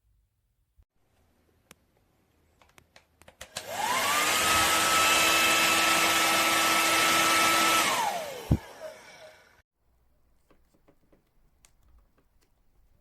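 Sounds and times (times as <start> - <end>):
hair dryer whine and air rush: 3.5 - 9.6.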